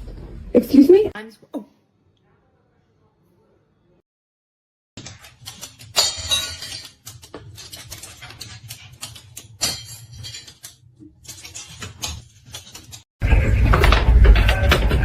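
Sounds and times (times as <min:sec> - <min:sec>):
hard objects clinking and clattering: 0:05.1 - 0:13.0.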